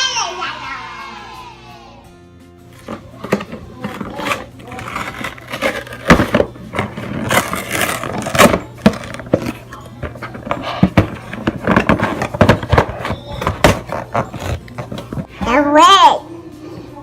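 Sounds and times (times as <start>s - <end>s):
objects clattering: 2.7s - 15.5s
objects knocking and clicking: 2.8s - 15.3s.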